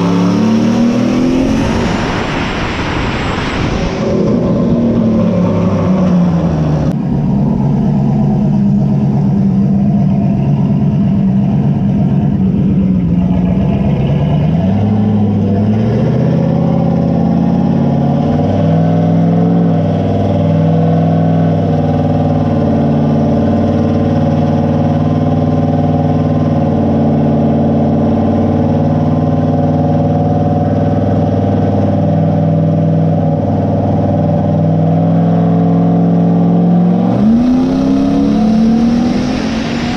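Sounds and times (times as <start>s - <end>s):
turbocharged engine on dyno: 0.0s - 39.9s.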